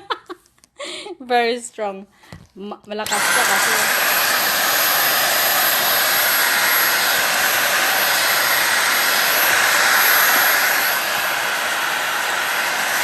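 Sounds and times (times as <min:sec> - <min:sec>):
vacuum cleaner running: 0:03.0 - 0:13.0.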